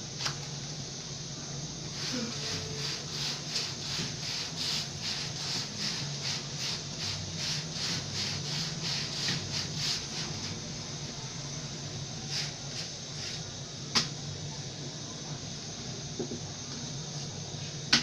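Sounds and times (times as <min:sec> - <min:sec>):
steady low hum: 0:00.0 - 0:18.0
dough being worked by hand: 0:02.0 - 0:10.6.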